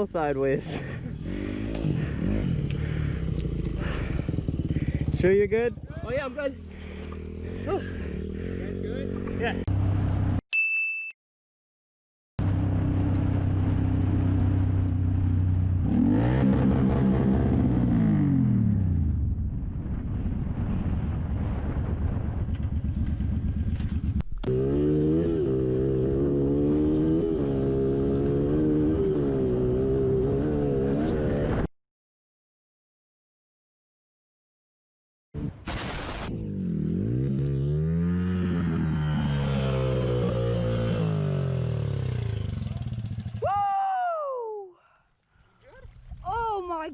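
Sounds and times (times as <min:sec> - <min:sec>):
motorcycle engine revving: 0:00.7 - 0:10.4, 0:12.4 - 0:19.2, 0:22.5 - 0:31.7, 0:36.3 - 0:43.5.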